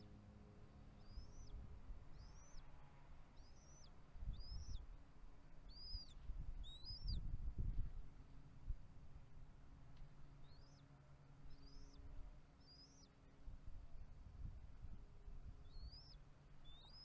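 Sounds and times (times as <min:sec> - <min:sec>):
bird chirping: 0:00.9 - 0:04.9, 0:05.6 - 0:07.3, 0:10.4 - 0:13.2, 0:15.6 - 0:17.0.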